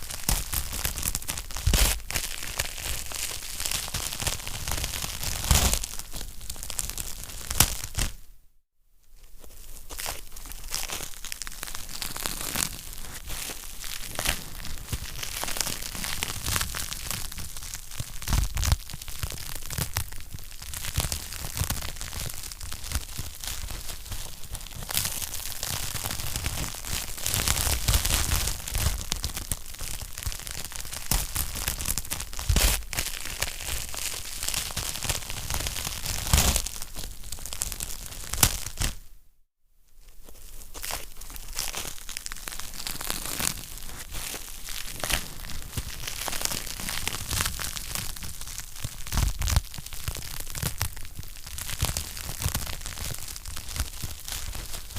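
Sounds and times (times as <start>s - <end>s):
wood fire crackling: 41.2s - 54.9s.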